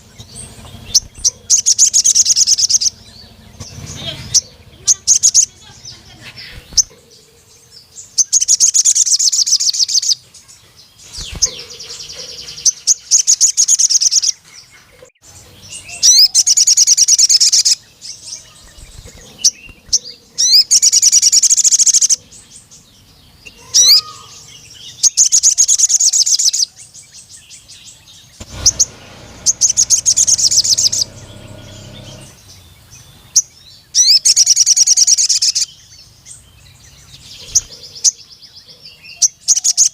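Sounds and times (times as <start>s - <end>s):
bird chirps: 0.0s - 39.9s
sunbird trilling song: 0.0s - 39.9s.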